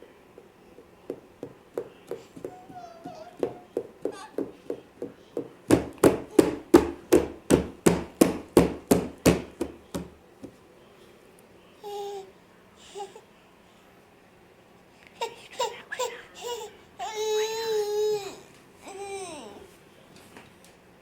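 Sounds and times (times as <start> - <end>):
rhythmic knocking: 0.4 - 10.1.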